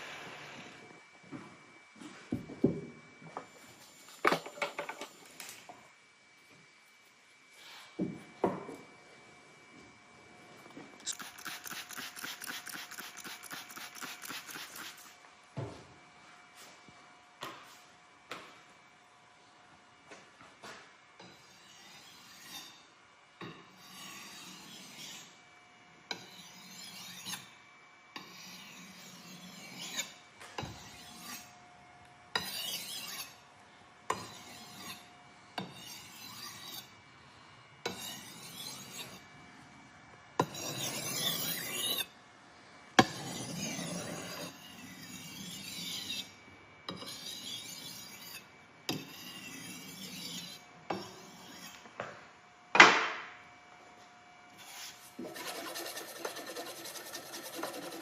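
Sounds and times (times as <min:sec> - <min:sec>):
hand abrasive rasping: 0:11.1 - 0:15.1, 0:55.2 - 0:58.0.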